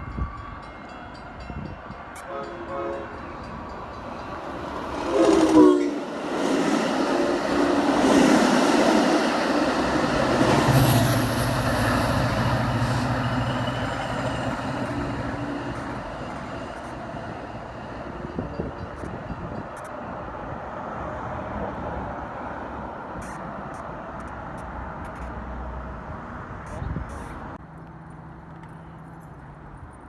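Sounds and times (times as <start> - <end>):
train passing on rails: 0.0 - 29.7.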